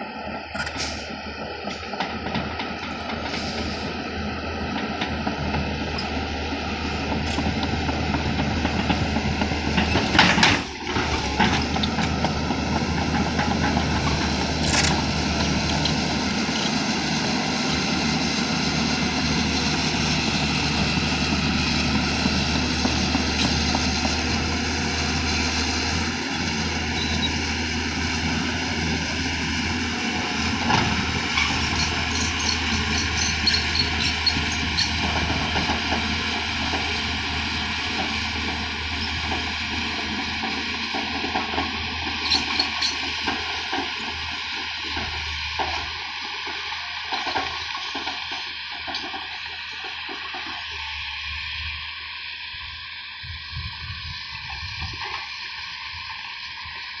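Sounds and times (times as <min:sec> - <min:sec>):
earthmoving machine diesel engine: 0:00.0 - 0:57.0.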